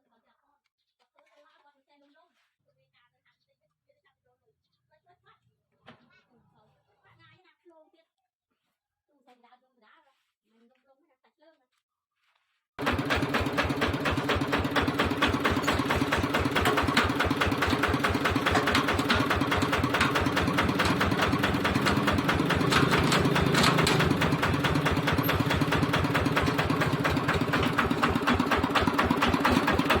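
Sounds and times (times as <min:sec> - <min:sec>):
diesel engine knocking steadily: 0:12.8 - 0:30.0.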